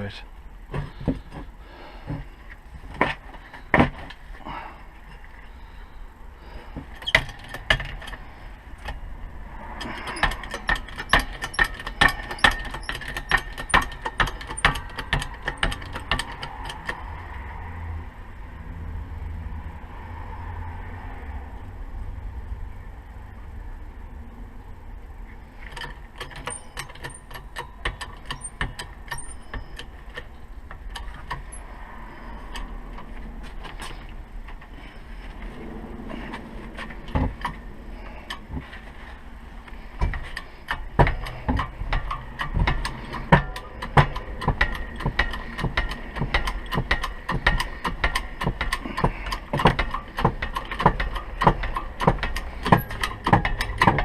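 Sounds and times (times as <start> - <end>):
metal-on-metal knocks and clicks: 6.7 - 17.2, 25.6 - 31.8, 36.3 - 38.8, 39.9 - 54.0.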